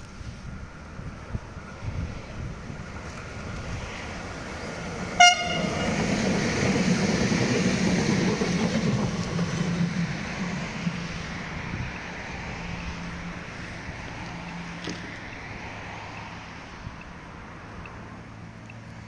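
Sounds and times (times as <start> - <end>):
train rumbling past: 0.0 - 19.0
train horn toot: 5.2 - 6.0.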